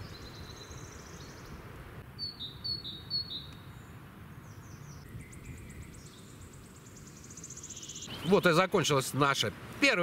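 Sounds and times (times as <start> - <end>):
songbirds chirping: 0.0 - 10.0
bird trill: 2.2 - 3.9, 4.5 - 8.7.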